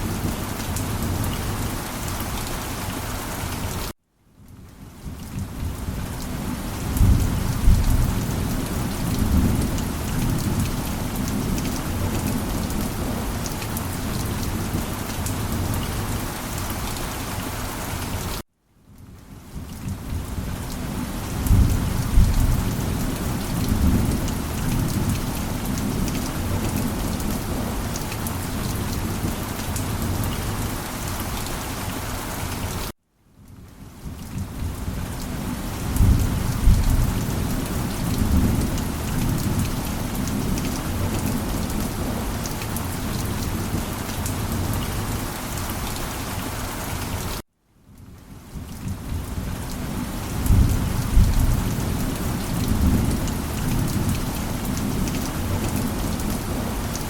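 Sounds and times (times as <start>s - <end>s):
heavy rain: 0.0s - 57.0s
rolling thunder rumbles: 6.9s - 13.3s, 21.4s - 27.9s, 35.9s - 42.3s, 50.4s - 56.7s.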